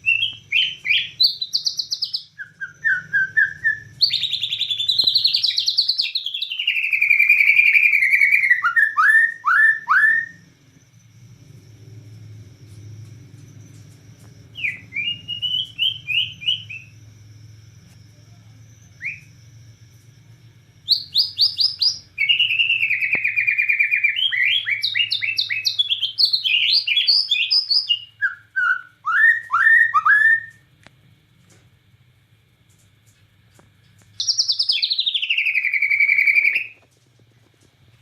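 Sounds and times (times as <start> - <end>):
bird whistling song: 0.0 - 10.5, 13.4 - 17.1, 18.8 - 19.6, 20.8 - 30.7, 34.2 - 36.8
faint low hum: 0.0 - 38.0.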